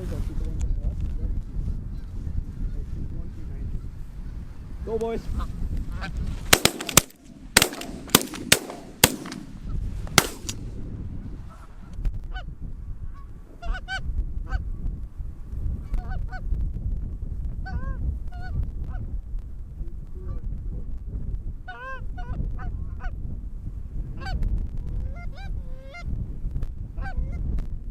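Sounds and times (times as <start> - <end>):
wind rumbling on microphone: 0.0 - 27.9
shotgun shots: 6.5 - 9.6, 10.2 - 10.7.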